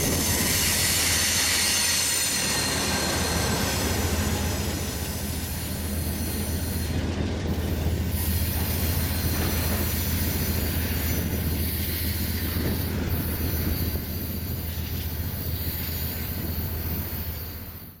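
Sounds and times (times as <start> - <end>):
freight train rumbling: 0.0 - 18.0
high wheel squeal: 0.0 - 18.0.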